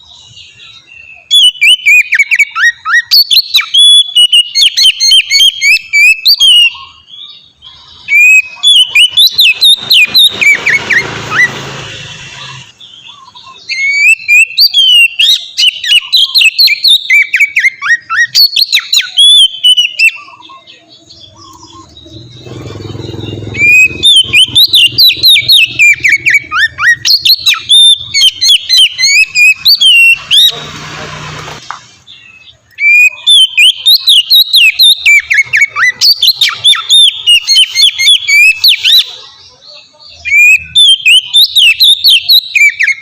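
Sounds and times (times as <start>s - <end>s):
bird singing whistled phrases: 0.0s - 22.6s, 23.2s - 30.6s, 32.1s - 43.0s
rushing background noise: 7.5s - 13.6s.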